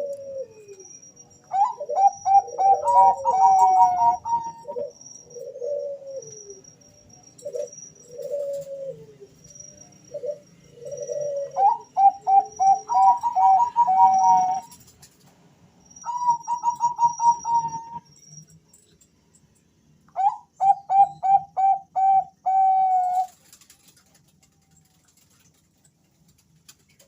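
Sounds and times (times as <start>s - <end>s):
faint high chirps: 0.0s - 14.9s, 15.7s - 23.6s
doves cooing: 0.0s - 15.0s, 16.1s - 18.1s, 20.2s - 24.0s.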